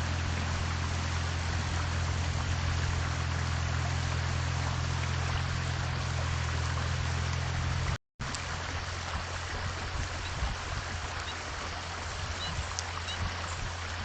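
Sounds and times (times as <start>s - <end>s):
low hum: 0.0s - 10.3s
rushing running water: 0.0s - 14.0s.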